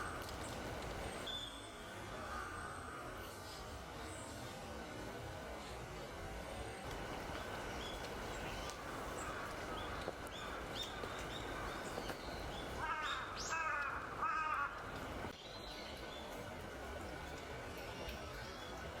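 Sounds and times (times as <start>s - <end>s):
low background noise: 0.0s - 19.0s
crows cawing: 8.6s - 15.0s.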